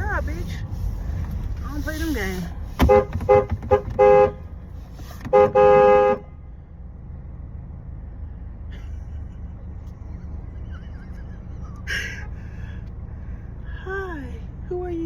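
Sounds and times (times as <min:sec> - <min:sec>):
steady low rumble: 0:00.0 - 0:05.3, 0:06.2 - 0:15.0
car horn honking: 0:01.7 - 0:06.5.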